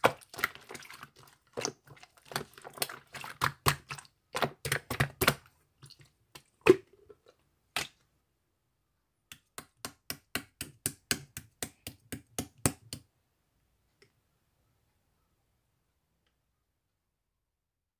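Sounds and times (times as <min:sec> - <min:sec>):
slime squishing with clicking pops: 0:01.5 - 0:05.5.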